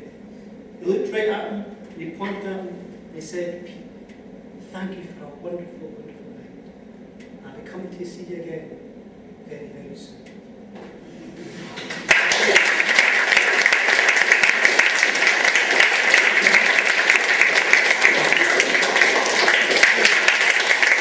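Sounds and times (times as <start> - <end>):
audience applauding: 11.7 - 21.0.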